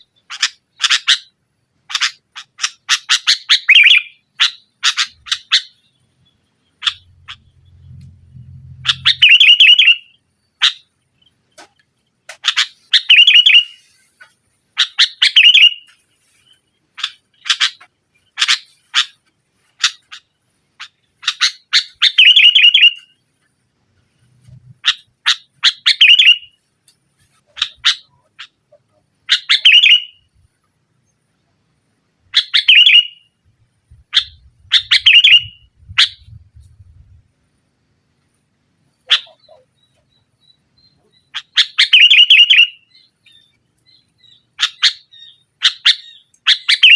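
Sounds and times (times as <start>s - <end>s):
bulbul calling loudly: 1.9s - 5.9s, 6.7s - 7.6s, 8.8s - 11.0s, 11.6s - 15.9s, 19.8s - 23.2s, 27.5s - 30.3s, 32.3s - 33.3s, 33.9s - 37.1s, 39.0s - 43.5s, 44.2s - 46.9s.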